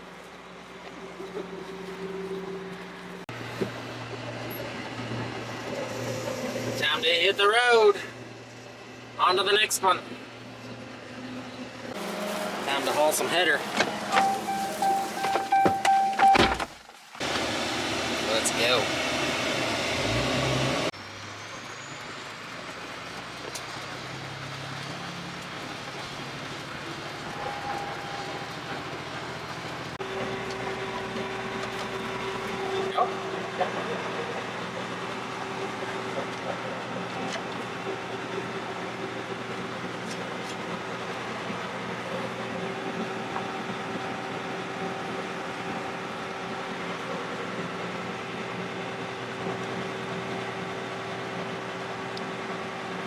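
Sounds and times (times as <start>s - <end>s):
vehicle engine humming: 0.0s - 53.0s.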